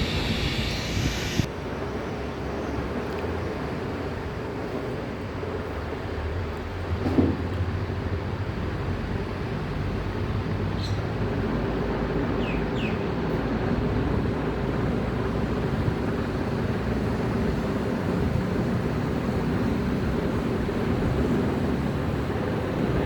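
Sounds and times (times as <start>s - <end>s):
low rumbling hum: 0.0s - 1.5s.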